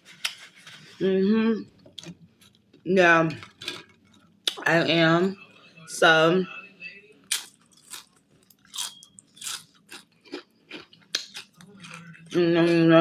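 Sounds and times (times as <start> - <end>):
person chewing crunchy food: 3.4 - 4.6, 7.3 - 12.5.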